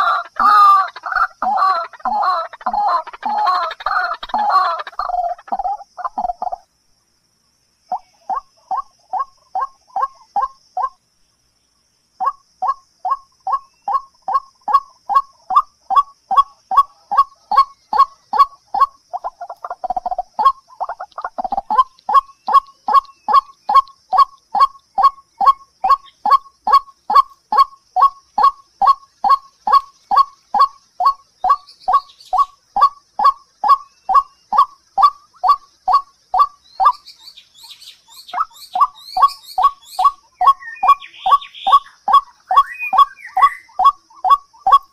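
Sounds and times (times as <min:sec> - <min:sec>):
bird call: 0:00.0 - 0:06.7, 0:12.2 - 0:44.9
high bird chirps: 0:12.2 - 0:44.9.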